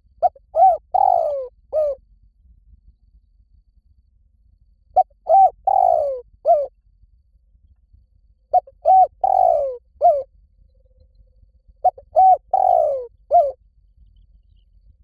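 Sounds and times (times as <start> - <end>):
dove cooing: 0.2 - 2.0, 5.0 - 6.7, 8.5 - 10.3, 11.8 - 13.6.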